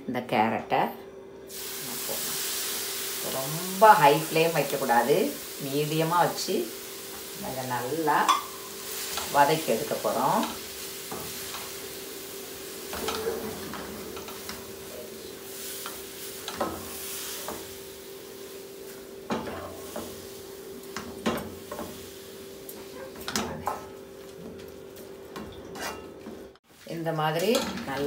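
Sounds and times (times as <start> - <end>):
food sizzling in a pan: 1.5 - 28.0
spatula scraping a pan: 12.6 - 17.7, 25.7 - 26.2.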